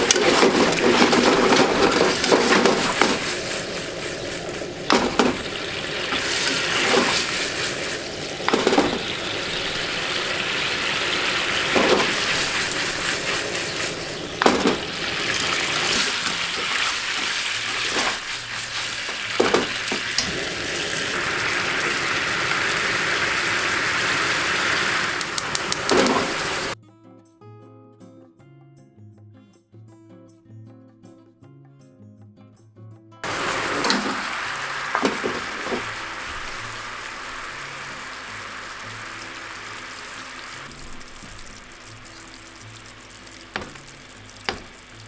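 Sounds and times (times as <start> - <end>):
utensil knocking against pan: 0.0 - 18.5, 19.3 - 20.4, 43.5 - 45.0
chicken sizzling in a frying pan: 0.0 - 26.8, 33.2 - 45.0.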